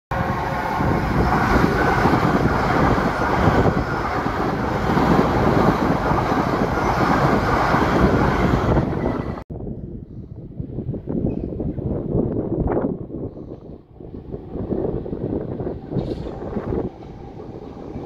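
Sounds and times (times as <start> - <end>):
electric train passing: 0.1 - 9.4, 13.9 - 18.0.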